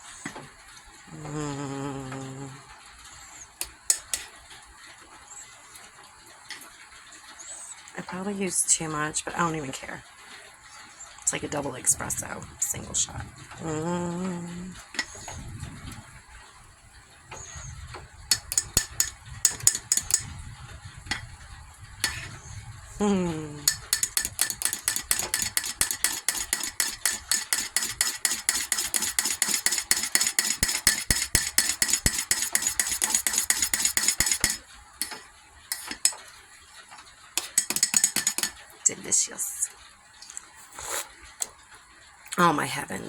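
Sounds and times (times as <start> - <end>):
spoon clinking in a cup: 18.3 - 20.4, 23.6 - 36.2, 37.4 - 38.6.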